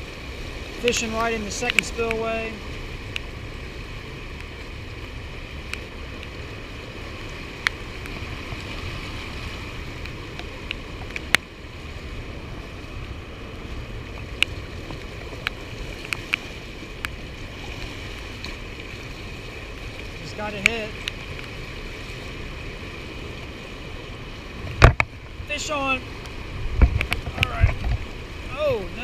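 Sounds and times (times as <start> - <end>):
water rushing through spillway: 0.0 - 29.0.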